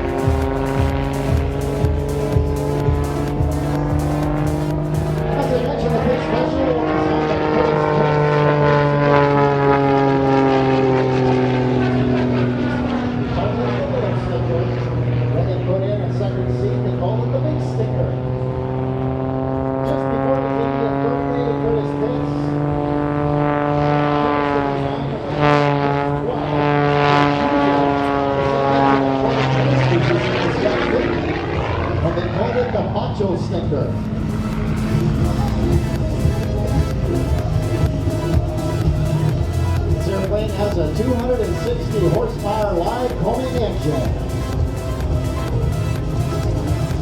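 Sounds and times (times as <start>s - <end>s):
propeller plane engine droning: 0.0s - 47.0s.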